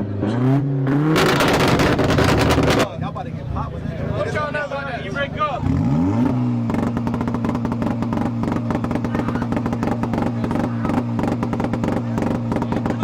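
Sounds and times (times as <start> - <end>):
car engine on rev limiter: 0.0 - 3.1, 4.0 - 13.0
exhaust popping crackles: 1.1 - 4.6, 6.3 - 13.0.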